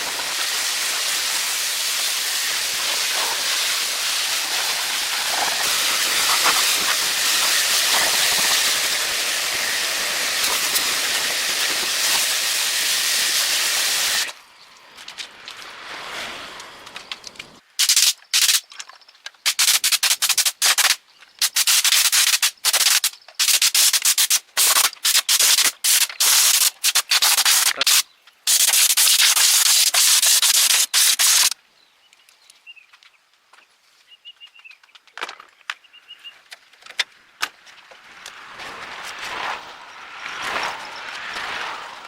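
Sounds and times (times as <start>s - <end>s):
compressed air spray bursts: 0.0s - 14.4s, 17.8s - 18.6s, 19.5s - 31.6s.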